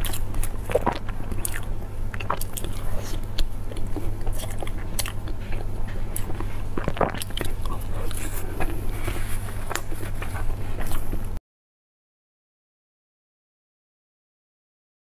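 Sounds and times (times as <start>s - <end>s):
chewing cake: 0.0s - 11.4s
low steady hum: 0.0s - 11.4s.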